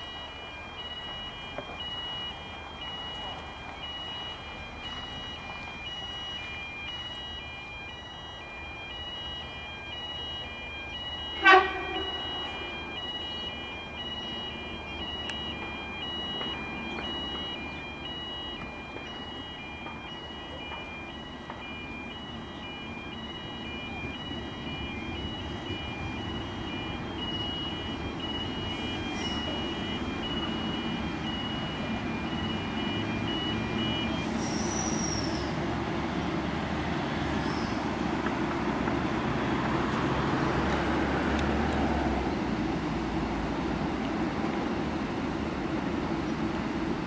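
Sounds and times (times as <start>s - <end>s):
electronic warning beeping: 0.0s - 35.6s
train rumble: 23.4s - 32.8s.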